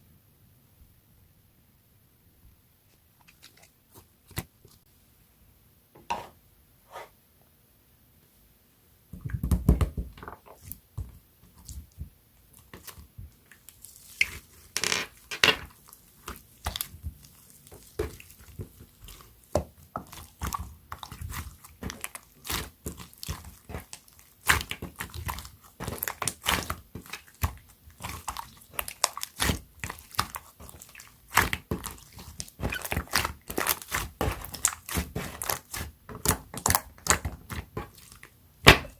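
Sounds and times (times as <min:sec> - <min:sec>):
slime squeezed by hand: 0:21.0 - 0:35.9.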